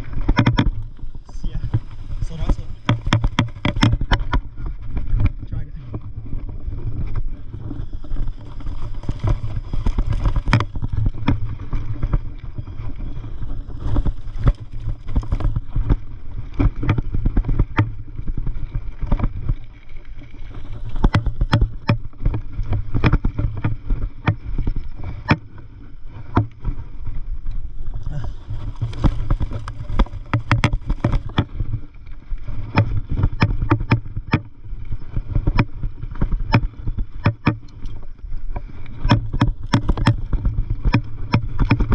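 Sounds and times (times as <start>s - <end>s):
bike clicks and rattles: 0.0s - 41.9s
wind rumble on microphone: 0.0s - 41.9s.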